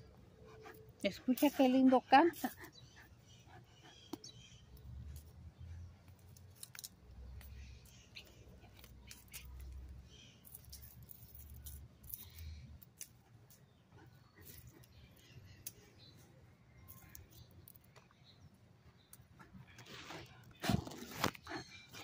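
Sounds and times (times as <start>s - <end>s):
bird singing faintly: 0.0s - 6.6s.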